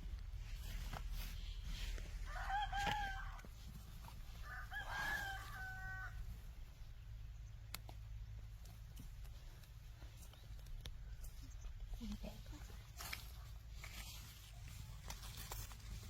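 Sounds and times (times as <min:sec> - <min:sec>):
rooster crowing: 0:02.2 - 0:03.5, 0:04.4 - 0:06.3.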